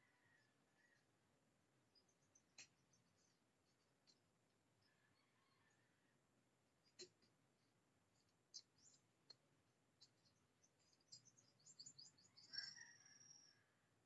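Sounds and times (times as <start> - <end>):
small bird chirping: 1.8 - 5.9, 6.8 - 13.8.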